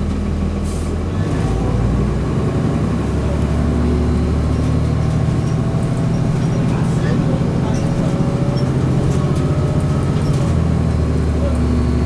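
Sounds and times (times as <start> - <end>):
diesel bus engine running: 0.0 - 12.0.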